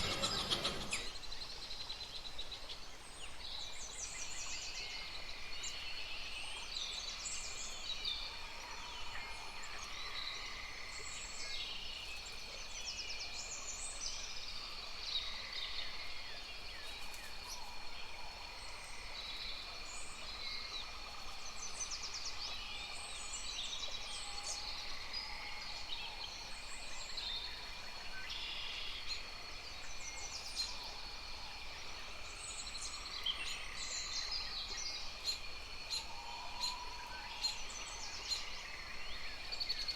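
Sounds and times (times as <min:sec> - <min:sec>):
birds chirping and trilling: 0:00.0 - 0:01.2.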